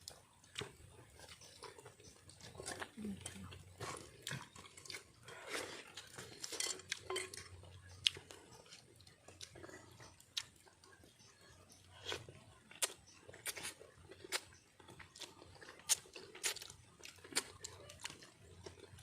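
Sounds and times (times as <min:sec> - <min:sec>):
chewing: 0:00.0 - 0:19.0
utensils clinking on plates: 0:06.4 - 0:07.6.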